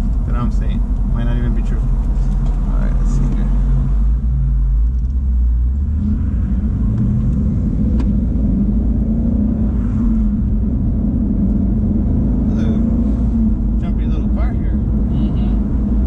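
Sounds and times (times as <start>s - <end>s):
car engine from inside cabin: 0.0s - 16.0s.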